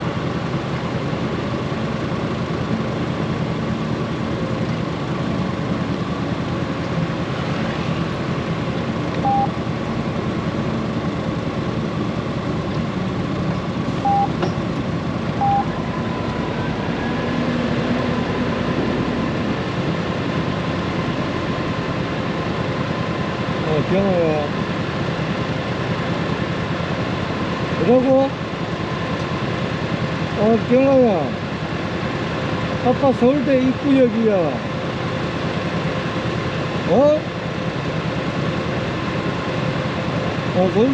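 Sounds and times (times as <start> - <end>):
motorcycle engine drone: 0.0 - 40.9
short electronic beeps: 9.2 - 9.6, 14.0 - 14.4, 15.4 - 15.7.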